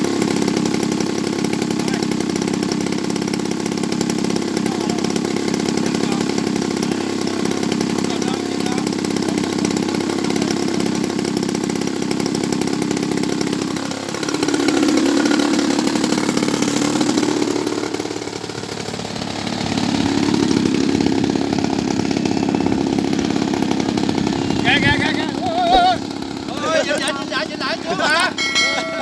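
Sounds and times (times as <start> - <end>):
model airplane engine buzzing: 0.0 - 29.0.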